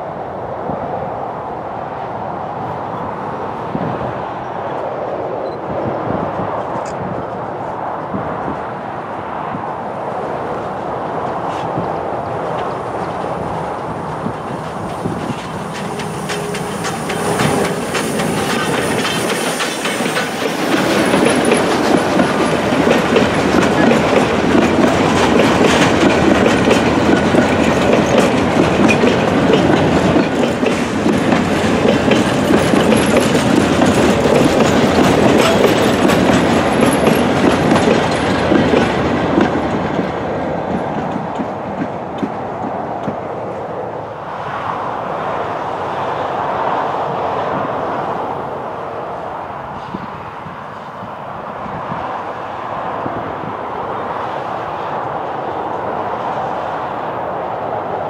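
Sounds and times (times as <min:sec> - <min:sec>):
train wheels clicking over rail joints: 0:11.2 - 0:43.5
coaches rumbling: 0:12.5 - 0:40.0.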